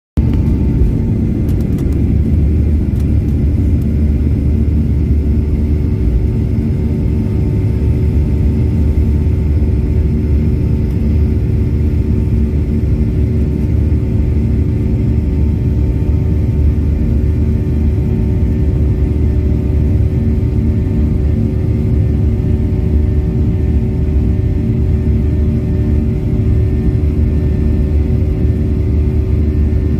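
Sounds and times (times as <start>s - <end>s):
airplane engines taking off: 0.2s - 29.9s.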